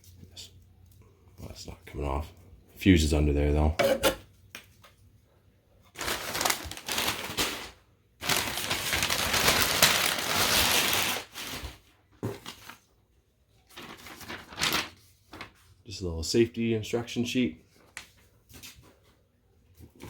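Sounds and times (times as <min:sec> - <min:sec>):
packaging crinkling: 0:05.9 - 0:12.9, 0:13.6 - 0:15.6.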